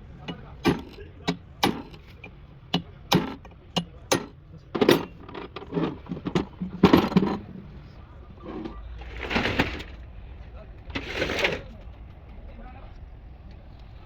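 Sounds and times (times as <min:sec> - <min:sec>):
metal tools clinking: 0:04.1 - 0:07.5
loud metal clatters: 0:08.4 - 0:10.0.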